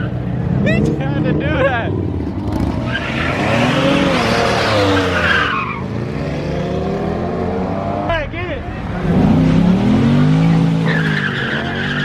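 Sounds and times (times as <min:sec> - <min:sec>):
car engine revving: 0:00.2 - 0:12.0
tyres squealing: 0:02.8 - 0:06.0, 0:10.4 - 0:12.0.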